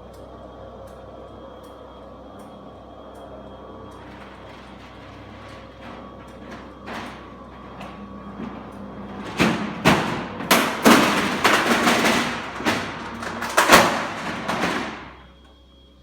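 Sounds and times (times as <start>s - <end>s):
metal garage door slats clattering: 3.9s - 15.4s.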